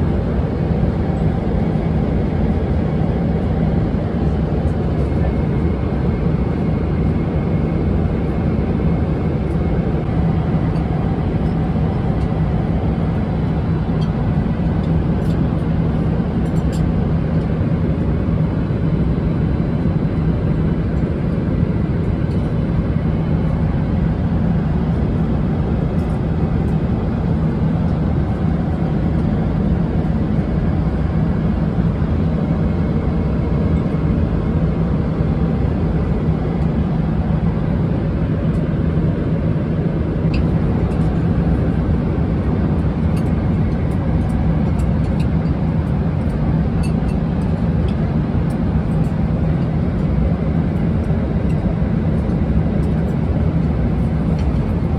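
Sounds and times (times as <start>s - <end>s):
constant low hum: 0.0s - 54.9s
engine and airflow rush: 0.0s - 54.9s.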